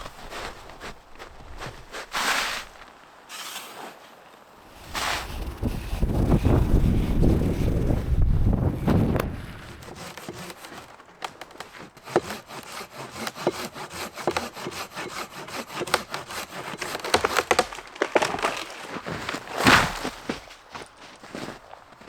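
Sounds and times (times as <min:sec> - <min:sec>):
dry wood cracking and splintering: 0:08.8 - 0:21.6.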